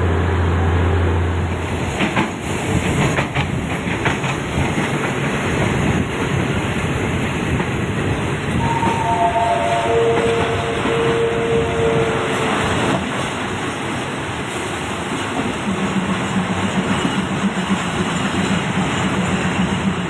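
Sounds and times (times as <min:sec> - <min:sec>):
train rumbling on rails: 0:00.0 - 0:20.0
held chord of steady tones: 0:08.6 - 0:12.8.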